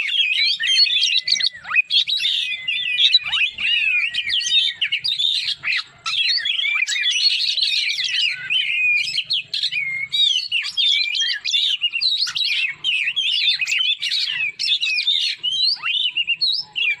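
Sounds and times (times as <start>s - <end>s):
songbird warbling: 0.0s - 17.0s.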